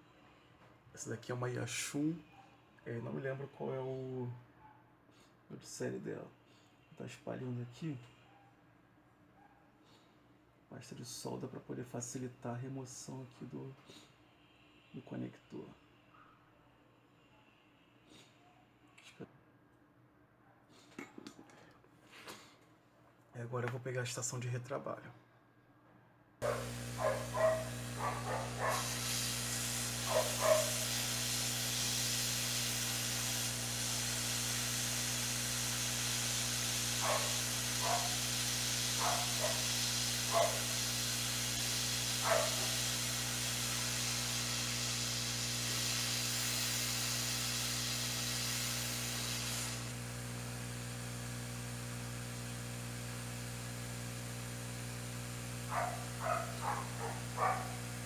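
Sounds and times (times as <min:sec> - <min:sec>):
dog barking: 0:02.3 - 0:02.6, 0:04.6 - 0:04.9, 0:08.2 - 0:08.6, 0:09.4 - 0:09.8, 0:26.4 - 0:29.1, 0:29.9 - 0:31.0, 0:37.0 - 0:38.3, 0:38.9 - 0:40.8, 0:42.2 - 0:42.9, 0:55.7 - 0:57.9
hot air blower hissing: 0:26.4 - 0:58.0
machine hum: 0:26.4 - 0:58.0.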